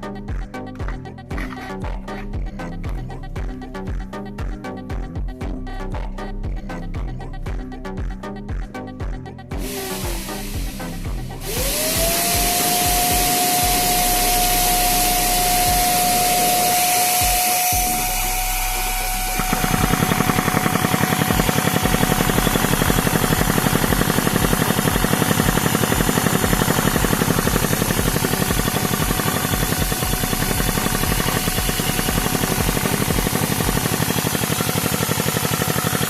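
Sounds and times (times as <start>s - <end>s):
motor whine: 9.6s - 36.0s
fast rhythmic clatter: 19.3s - 36.0s.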